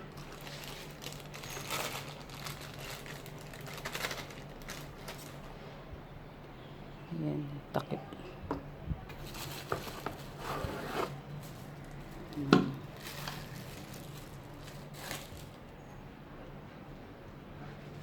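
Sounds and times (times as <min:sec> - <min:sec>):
packaging rustling: 0:00.0 - 0:05.5, 0:09.2 - 0:15.7.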